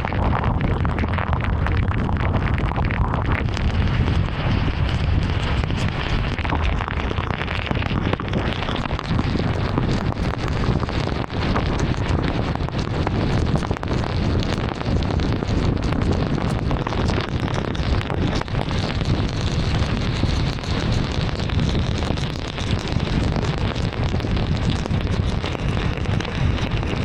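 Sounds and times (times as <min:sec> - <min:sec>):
heavy rain on a car: 0:00.4 - 0:27.0.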